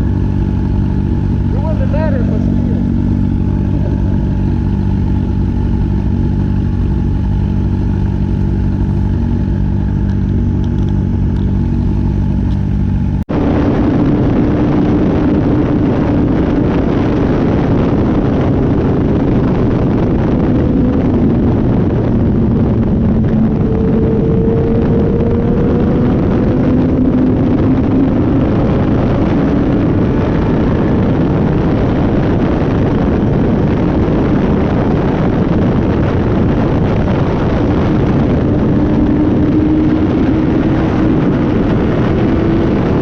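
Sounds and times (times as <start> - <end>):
motorcycle engine idling: 0.0 - 13.3
motorcycle engine running: 0.0 - 43.0
loud rushing noise: 1.3 - 6.5.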